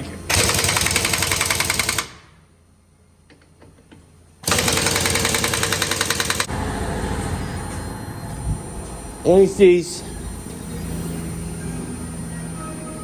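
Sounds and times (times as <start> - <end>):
impact wrench rattling: 4.4 - 6.5.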